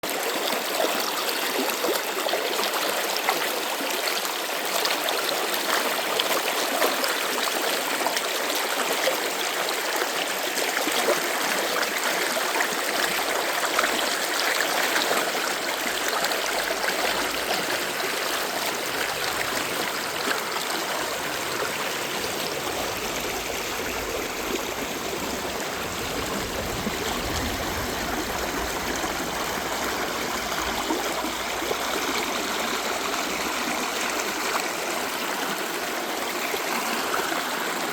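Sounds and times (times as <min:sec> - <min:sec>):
stream water flowing: 0:00.0 - 0:37.9
faint low rumble: 0:21.0 - 0:33.9.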